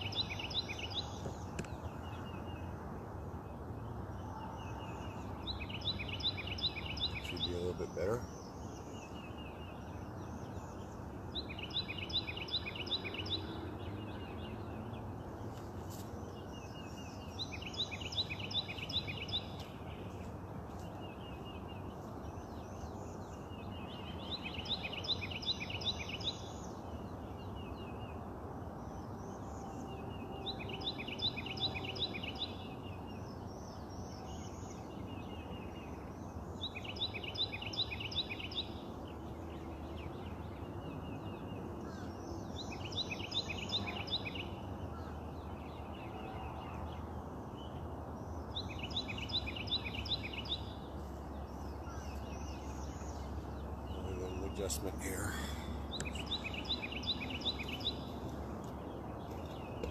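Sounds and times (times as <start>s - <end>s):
low background noise: 0.0s - 59.9s
songbird singing: 0.0s - 59.9s.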